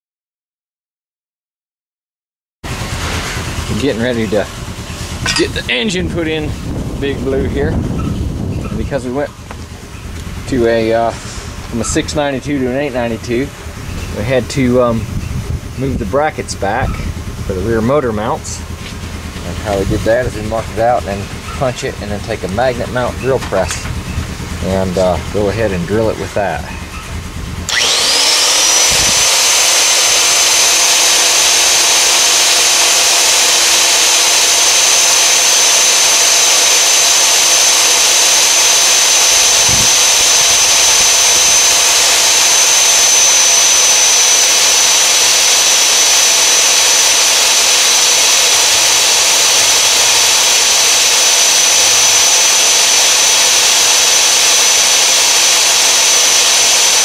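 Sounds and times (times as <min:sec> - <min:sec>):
drill press motor whining: 0:05.2 - 0:06.4, 0:18.2 - 0:57.0.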